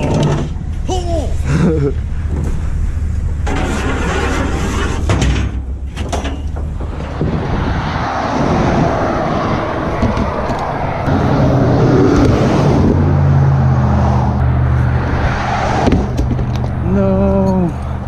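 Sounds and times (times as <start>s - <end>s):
vehicle engine running: 0.0s - 4.5s
road and wind noise: 0.0s - 18.0s
sharp knocks and clatter: 4.6s - 7.8s, 15.8s - 16.8s.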